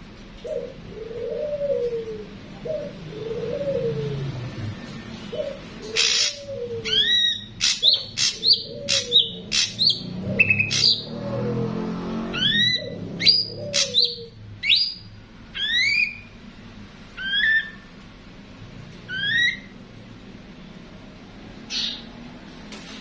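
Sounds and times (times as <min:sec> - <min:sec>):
low falling cooing: 0:00.4 - 0:07.2
bird chirps and whistles: 0:12.4 - 0:16.3, 0:17.2 - 0:17.9, 0:19.1 - 0:19.7.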